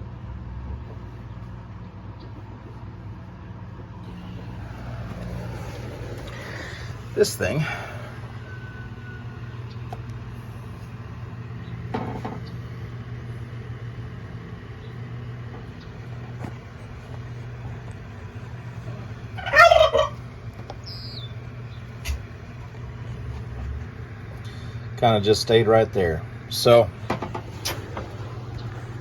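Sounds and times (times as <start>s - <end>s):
low hum: 0.0s - 29.0s
turkey gobbling: 4.1s - 10.8s, 18.8s - 22.4s.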